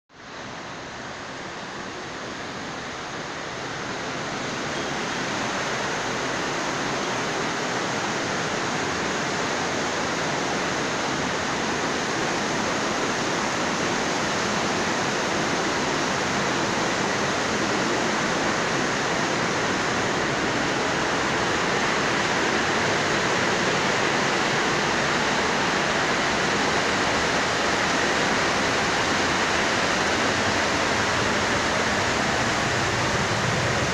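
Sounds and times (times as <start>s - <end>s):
heavy rain pouring: 0.2s - 33.9s.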